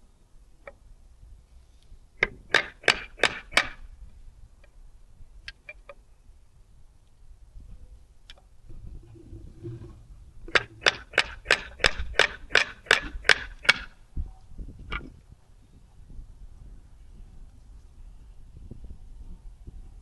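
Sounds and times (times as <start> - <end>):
hammer tapping on metal: 10.5 - 13.9.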